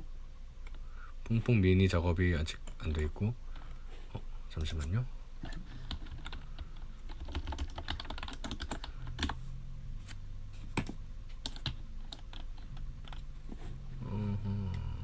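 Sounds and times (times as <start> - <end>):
typing on computer keyboard: 5.8 - 9.4, 10.8 - 13.2.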